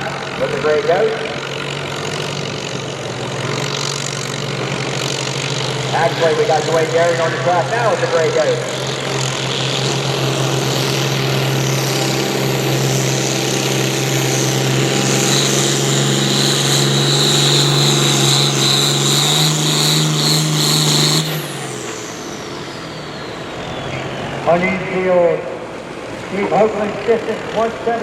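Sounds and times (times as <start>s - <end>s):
turbocharger whine: 0.0s - 27.9s
tractor engine at full throttle: 0.0s - 28.0s.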